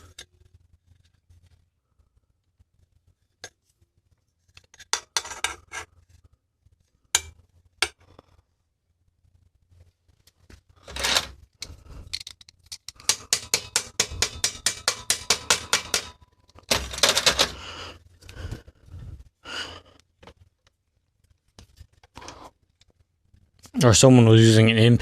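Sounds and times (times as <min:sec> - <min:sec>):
metal scraping on metal: 0:04.7 - 0:06.2, 0:10.8 - 0:11.4, 0:13.0 - 0:17.6.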